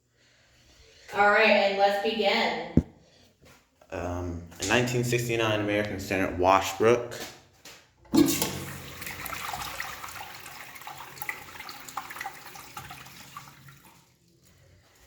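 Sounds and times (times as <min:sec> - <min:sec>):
urinal flushing: 0:08.1 - 0:15.0.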